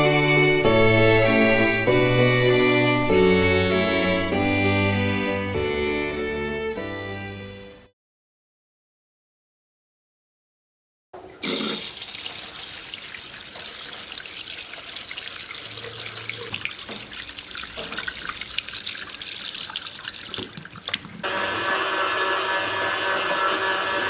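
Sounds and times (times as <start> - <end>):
tap water running into sink: 11.2 - 21.3
mechanical hum: 21.2 - 24.0.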